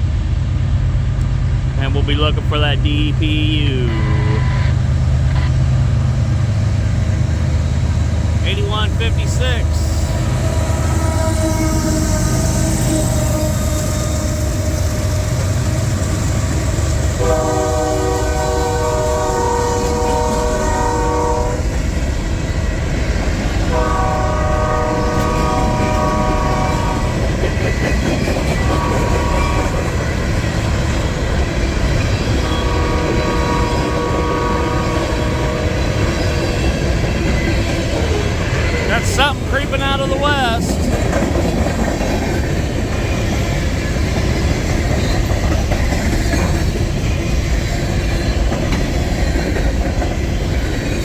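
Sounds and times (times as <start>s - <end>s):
freight train rumbling: 0.0s - 51.0s
locomotive horn chord: 1.8s - 5.6s, 8.7s - 13.9s, 17.2s - 21.7s, 23.7s - 27.2s, 28.7s - 29.8s, 32.4s - 35.8s.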